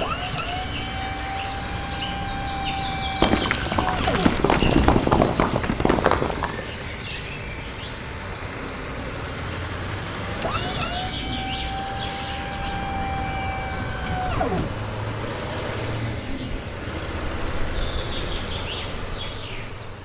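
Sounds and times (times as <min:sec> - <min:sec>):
small electric motor whining: 0:00.0 - 0:04.4, 0:10.4 - 0:16.6
outdoor background noise: 0:00.0 - 0:20.0.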